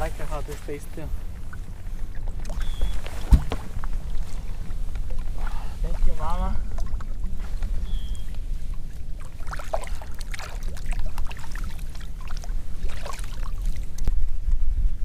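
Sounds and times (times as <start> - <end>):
water splashing against boat: 0.0 - 14.3
steady low rumble: 0.0 - 15.0.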